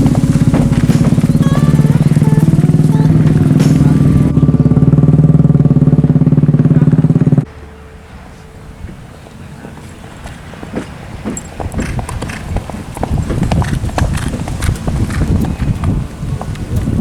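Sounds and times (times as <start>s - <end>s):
motorcycle engine running: 0.0s - 7.5s, 11.7s - 17.0s.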